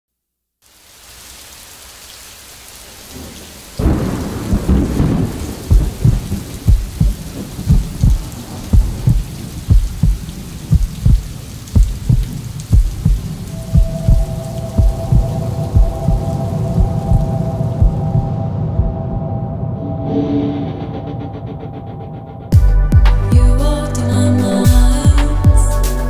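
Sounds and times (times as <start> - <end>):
steady rain: 0.6 - 19.4
thunder rumble: 3.1 - 23.6
deep heartbeat-like thump: 4.5 - 19.2.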